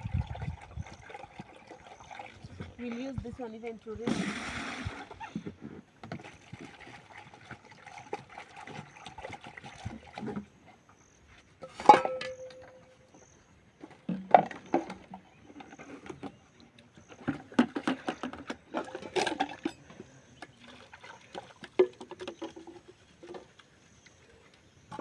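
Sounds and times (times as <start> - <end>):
metal pots clanking: 11.6 - 13.1, 17.1 - 20.5
loud ringing clang: 11.9 - 13.0.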